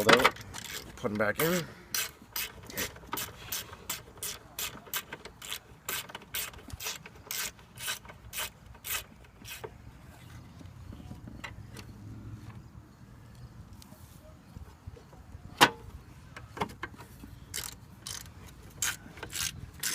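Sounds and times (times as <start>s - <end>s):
ratchet clicking: 0.2s - 0.9s, 1.9s - 9.7s, 17.5s - 19.9s.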